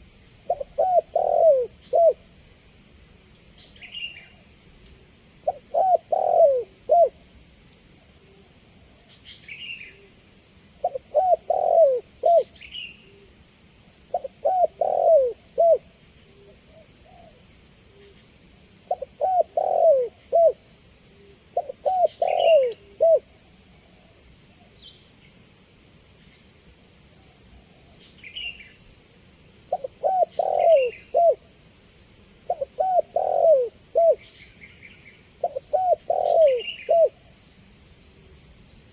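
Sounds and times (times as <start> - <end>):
dove cooing: 0.0 - 2.2, 5.4 - 7.2, 10.8 - 13.3, 14.1 - 17.4, 18.9 - 20.6, 21.6 - 23.3, 29.7 - 31.4, 32.5 - 34.3, 35.4 - 37.2
insect hiss: 0.0 - 38.9
small bird chirps: 21.6 - 23.1, 29.8 - 31.4.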